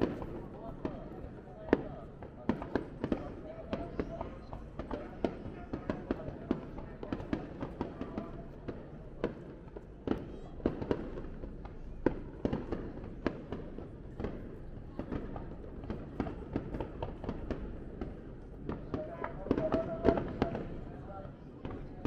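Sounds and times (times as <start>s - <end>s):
fireworks bangs: 14.2s - 20.8s.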